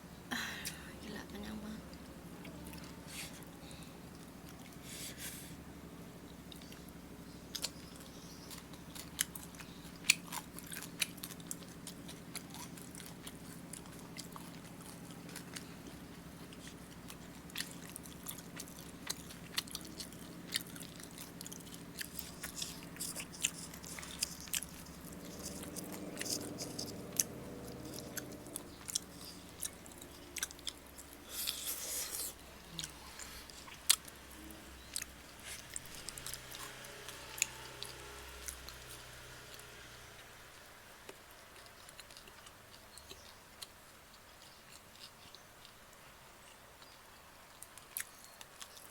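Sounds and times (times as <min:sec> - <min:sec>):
low hum: 0:00.0 - 0:40.9
chicken being bitten and chewed: 0:06.4 - 0:48.9
rustle: 0:07.7 - 0:30.4.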